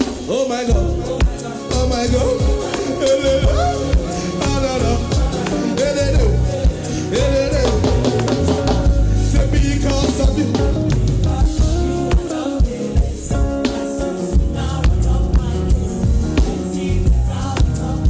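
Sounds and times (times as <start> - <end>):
drum kit beat: 0.0 - 18.0
guitar: 0.0 - 18.0
person singing: 0.0 - 18.0.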